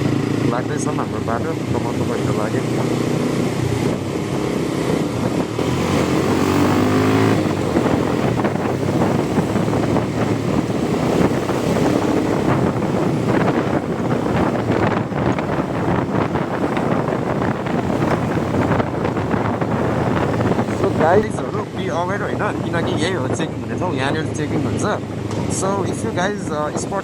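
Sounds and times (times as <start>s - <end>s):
motorcycle engine accelerating: 0.0s - 21.4s
wind buffeting microphone: 0.0s - 27.0s.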